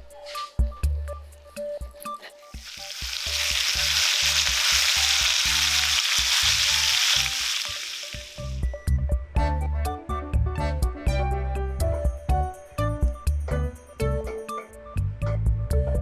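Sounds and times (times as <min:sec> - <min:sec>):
soft background music: 0:00.0 - 0:16.0
food sizzling in oil: 0:02.6 - 0:08.7.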